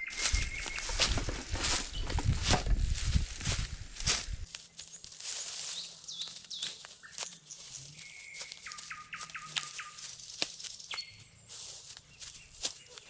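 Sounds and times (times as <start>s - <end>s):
birds chirping: 0.0s - 4.4s
sharp clicks and knocks: 0.2s - 4.4s.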